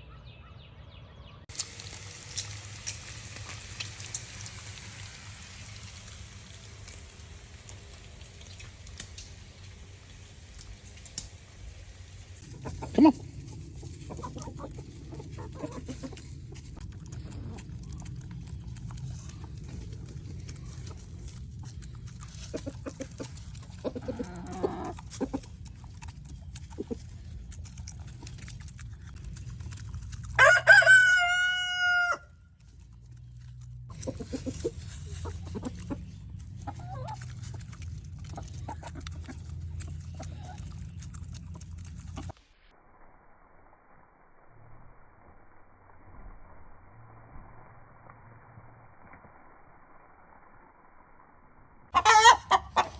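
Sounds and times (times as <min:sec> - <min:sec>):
chickens clucking: 0:12.4 - 0:32.1, 0:33.3 - 0:42.3, 0:52.0 - 0:52.9
rooster crowing: 0:30.4 - 0:32.4.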